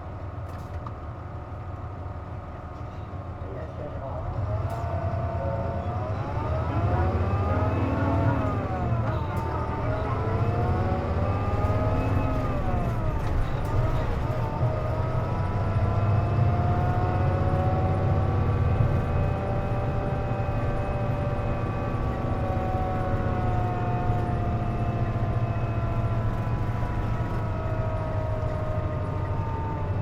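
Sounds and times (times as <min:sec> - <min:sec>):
bus engine rumble: 0:00.0 - 0:30.0.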